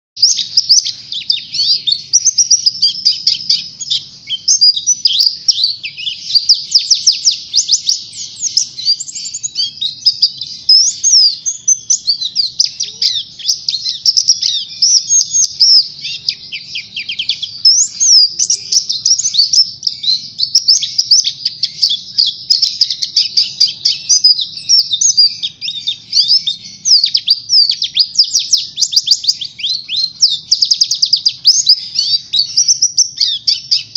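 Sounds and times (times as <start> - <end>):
bird singing warbling trills: 0.2 - 33.9.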